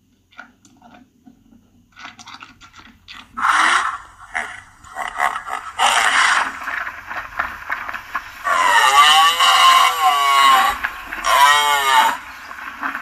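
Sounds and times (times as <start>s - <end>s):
noisy bursts: 2.6s - 13.0s.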